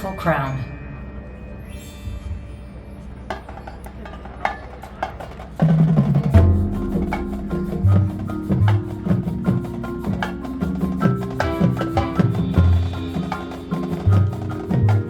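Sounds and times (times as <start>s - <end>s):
marching band with drums: 3.3s - 15.0s.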